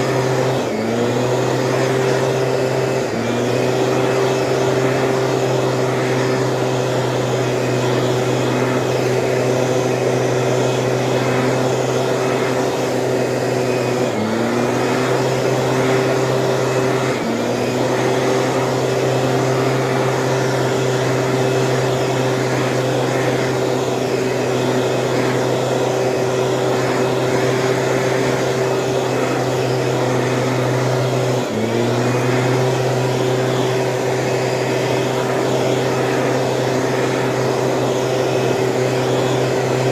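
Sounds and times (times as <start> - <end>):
small sprayer engine running: 0.0 - 39.9.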